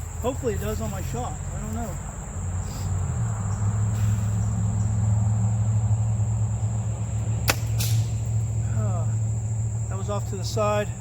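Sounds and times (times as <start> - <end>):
high insect trill: 0.0 - 11.0
road traffic rumble: 0.0 - 11.0
bow string snap: 7.4 - 8.3.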